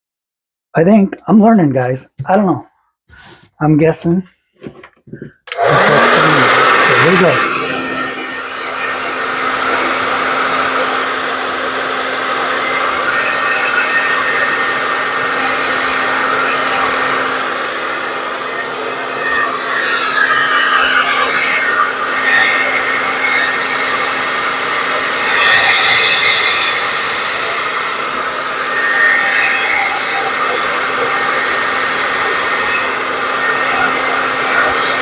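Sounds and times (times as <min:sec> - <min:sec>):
blow dryer running: 0:05.5 - 0:35.0.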